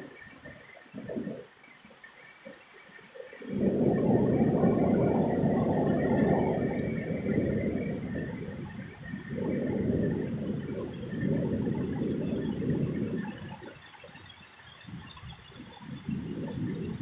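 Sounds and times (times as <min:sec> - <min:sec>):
wind gusting against microphone: 0:03.4 - 0:14.1, 0:14.8 - 0:17.0.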